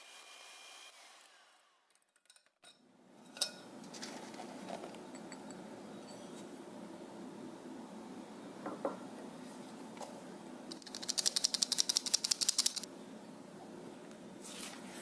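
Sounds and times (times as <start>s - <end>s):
rapid light sharp clicks: 10.7s - 12.9s.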